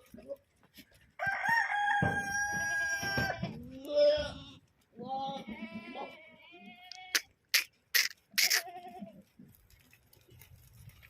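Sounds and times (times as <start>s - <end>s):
goats bleating: 2.6s - 7.4s, 8.0s - 9.2s.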